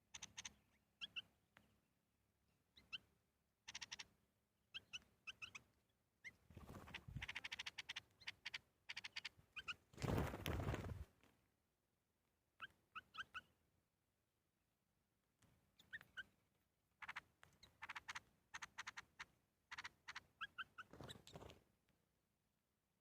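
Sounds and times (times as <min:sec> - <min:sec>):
birds chirping and trilling: 0:00.0 - 0:01.4, 0:02.7 - 0:10.8, 0:12.6 - 0:13.6, 0:15.7 - 0:21.5.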